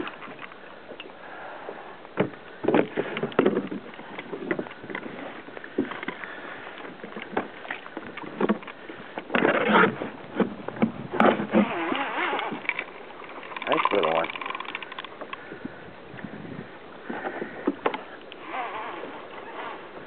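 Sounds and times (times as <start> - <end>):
water splashing: 2.8 - 15.5.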